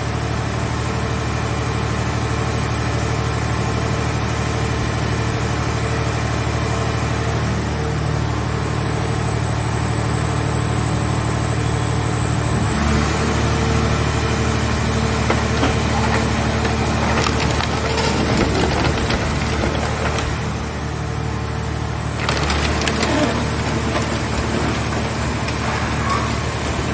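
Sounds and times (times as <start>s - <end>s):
baler engine and hydraulics: 7.3s - 26.9s.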